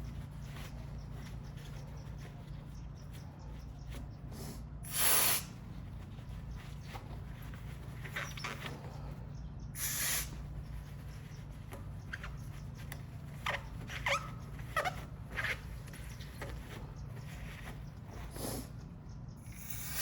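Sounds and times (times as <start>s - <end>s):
squeaky scrapes: 0.0s - 4.3s, 4.9s - 18.8s
short hiss: 4.9s - 5.5s, 9.8s - 10.3s.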